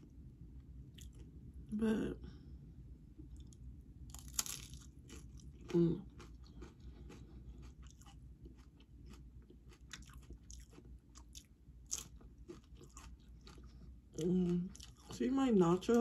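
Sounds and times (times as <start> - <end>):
chewing chips: 3.4 - 15.2
tortilla chips crunching: 4.1 - 13.8.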